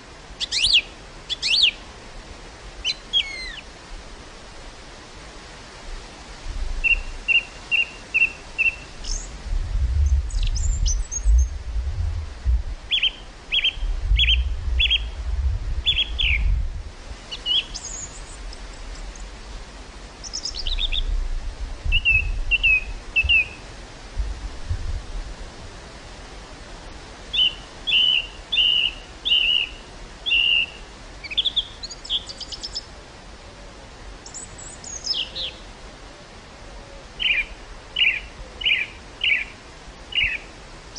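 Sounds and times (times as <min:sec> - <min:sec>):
steady outdoor hiss: 0:00.0 - 0:40.9
small birds chirping: 0:00.4 - 0:01.8, 0:02.8 - 0:03.7, 0:06.8 - 0:09.4, 0:10.0 - 0:11.6, 0:12.9 - 0:15.2, 0:15.8 - 0:16.6, 0:17.3 - 0:19.4, 0:20.2 - 0:21.2, 0:21.9 - 0:23.6, 0:27.3 - 0:32.9, 0:34.2 - 0:35.6, 0:37.2 - 0:40.5
wind rumbling on microphone: 0:01.9 - 0:31.3.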